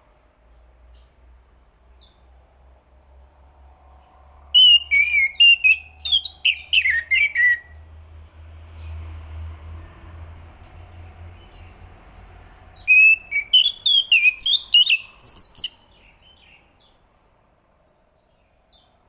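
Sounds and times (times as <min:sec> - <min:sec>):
thrush singing whistled notes: 0:04.6 - 0:07.8, 0:12.7 - 0:16.9.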